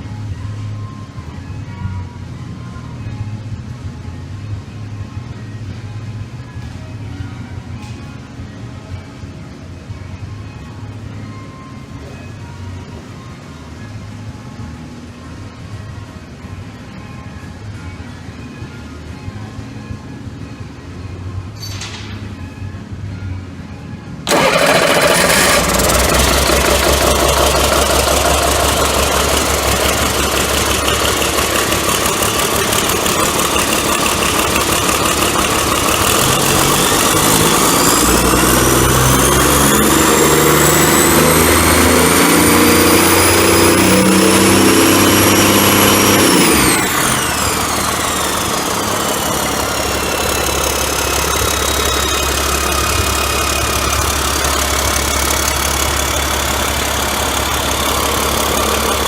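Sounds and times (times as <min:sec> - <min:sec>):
high engine whine: 0:00.0 - 0:59.0
diesel engine idling and revving: 0:23.9 - 0:59.0.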